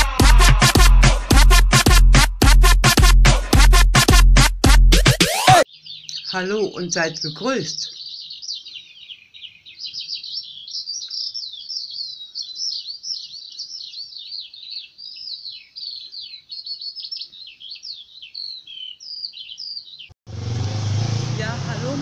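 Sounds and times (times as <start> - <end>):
birds chirping: 5.2 - 20.4.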